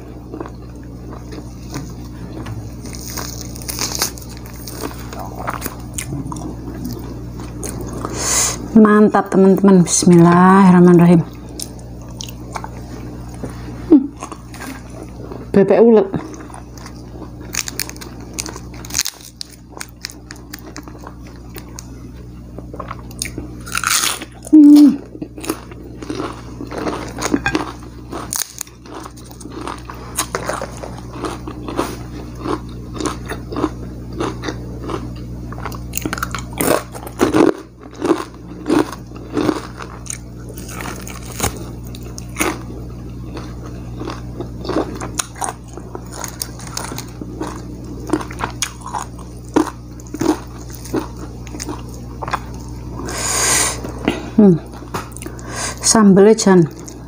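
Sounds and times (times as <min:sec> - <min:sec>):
crunchy chewing and biting: 0:00.0 - 0:08.7, 0:11.4 - 0:13.5, 0:16.2 - 0:55.5
person humming: 0:05.2 - 0:06.9, 0:24.5 - 0:25.1, 0:54.0 - 0:54.7.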